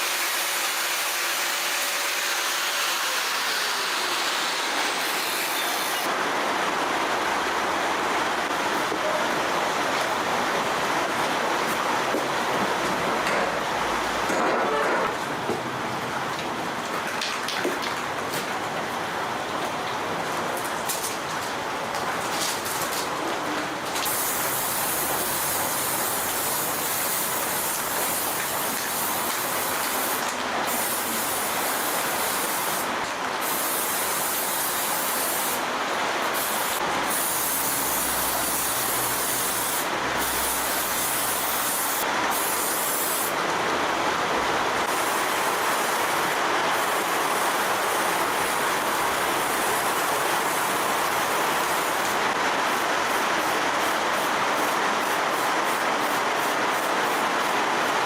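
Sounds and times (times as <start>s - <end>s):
steady hiss: 23.9s - 43.4s.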